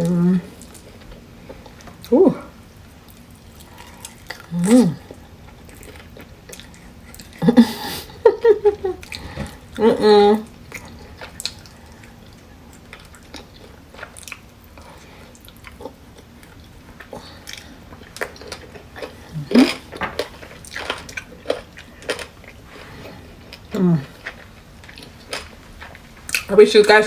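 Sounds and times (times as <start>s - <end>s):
person chewing food: 0.0s - 26.5s
person humming: 2.1s - 2.5s, 4.5s - 5.0s, 23.7s - 24.2s.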